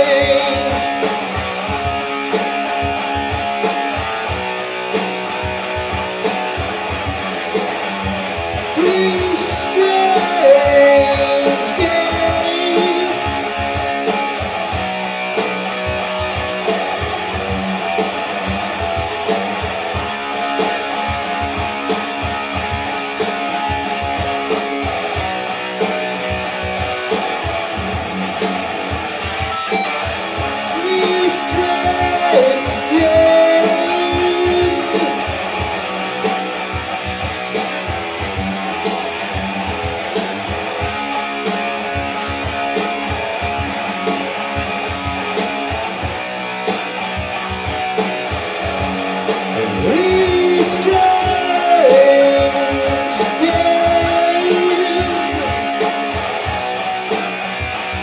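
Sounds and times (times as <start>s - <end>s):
person singing: 0.0s - 1.2s, 8.7s - 13.7s, 30.6s - 35.8s, 49.5s - 55.9s
drum beat: 0.0s - 58.0s
strummed electric guitar: 0.0s - 58.0s.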